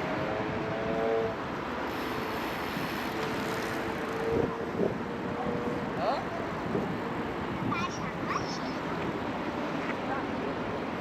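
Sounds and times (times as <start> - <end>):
wind on microphone: 0.0 - 8.4
distant city traffic: 0.0 - 11.0.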